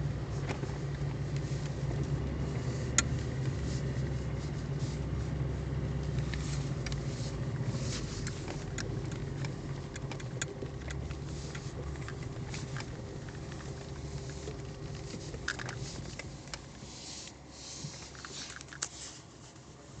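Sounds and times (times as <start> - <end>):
car engine running: 0.0 - 20.0
sharp clicks and knocks: 6.1 - 16.8.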